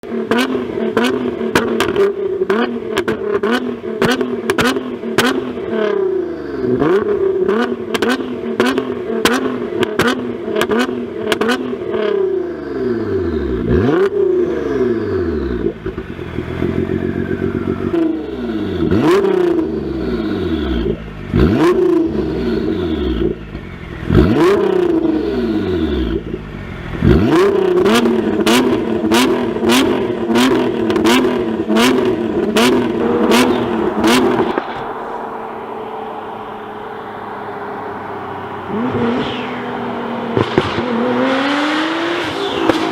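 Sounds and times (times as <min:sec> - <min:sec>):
engine revving: 0:00.2 - 0:42.9
engine idling: 0:31.3 - 0:38.9
exhaust pops: 0:40.3 - 0:41.2.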